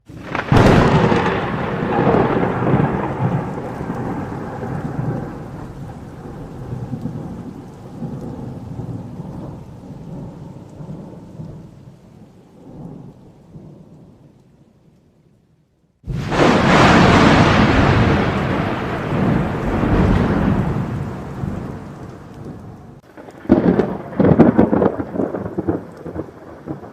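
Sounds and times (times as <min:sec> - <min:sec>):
thunder crack and rumble: 0:00.1 - 0:14.2, 0:16.1 - 0:26.9.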